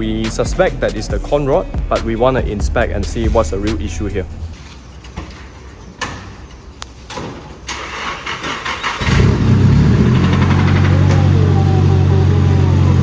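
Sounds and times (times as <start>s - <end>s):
car engine cranking and idling: 2.3s - 4.6s, 7.7s - 13.0s.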